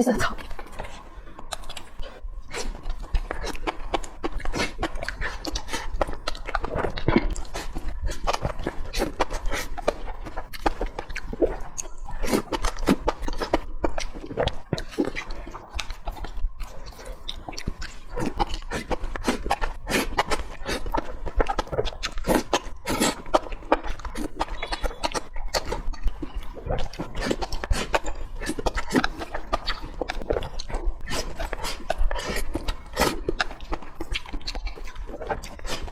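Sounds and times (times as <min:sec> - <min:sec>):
wet chewing and lip-smacking: 0:00.1 - 0:35.9.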